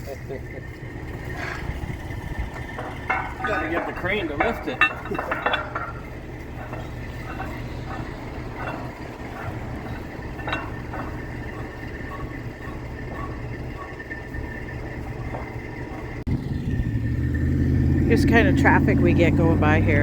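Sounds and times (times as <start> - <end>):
engine humming: 0.0 - 20.0
faint metallic clinks: 2.4 - 16.2.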